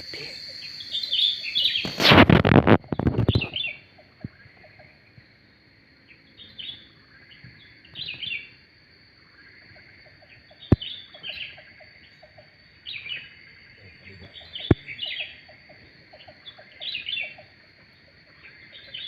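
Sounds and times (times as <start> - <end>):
birds chirping high notes: 0.0 - 2.0
thin steady high tone: 0.0 - 2.0.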